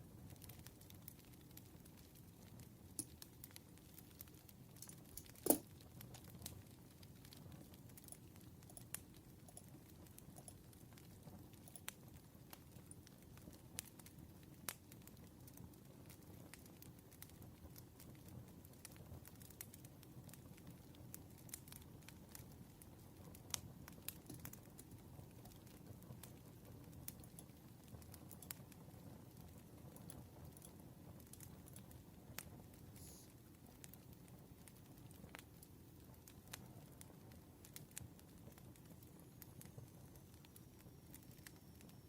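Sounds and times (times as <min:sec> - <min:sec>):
hiss and rumble of burning wood: 0:00.0 - 0:42.0
campfire snaps and pops: 0:00.1 - 0:42.0.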